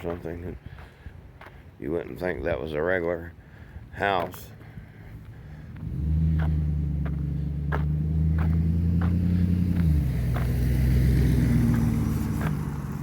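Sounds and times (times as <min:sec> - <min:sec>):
car engine humming: 0:04.5 - 0:13.0.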